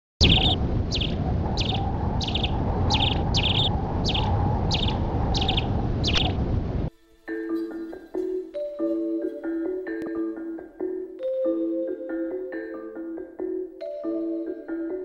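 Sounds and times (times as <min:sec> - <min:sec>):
bird chirping in quick trills: 0:00.2 - 0:06.4.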